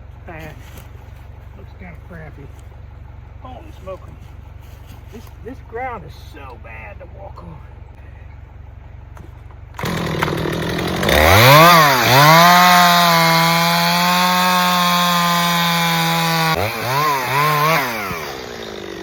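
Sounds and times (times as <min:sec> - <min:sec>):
chainsaw cutting through wood: 0:09.8 - 0:19.0.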